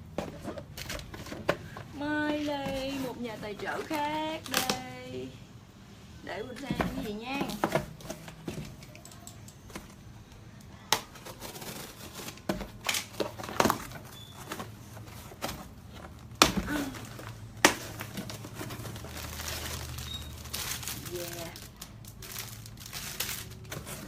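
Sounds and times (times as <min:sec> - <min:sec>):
packaging crinkling and rustling: 0:11.0 - 0:24.0.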